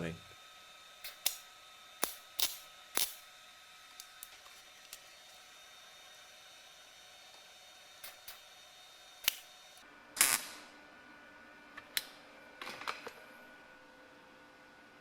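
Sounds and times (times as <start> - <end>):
metal parts clicking and knocking: 1.0 - 1.4, 2.0 - 3.2.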